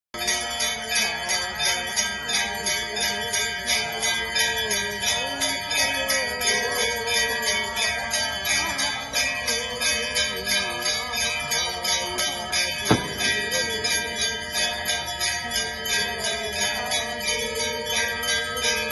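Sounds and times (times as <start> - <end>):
bells jingling: 0.2 - 18.9
sharp knock: 12.9 - 13.5.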